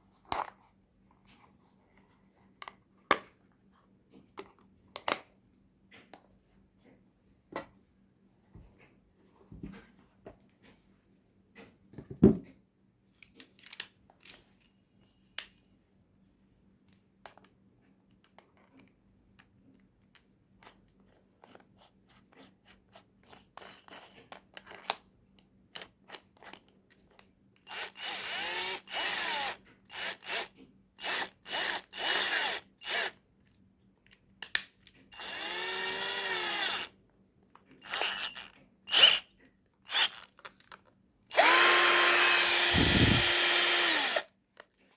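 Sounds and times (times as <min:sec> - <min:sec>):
drill motor spinning: 0:27.7 - 0:33.1, 0:35.2 - 0:36.9, 0:37.8 - 0:39.2, 0:39.9 - 0:40.2, 0:41.3 - 0:44.3
drill handling clicks and knocks: 0:37.8 - 0:39.2, 0:39.9 - 0:44.3.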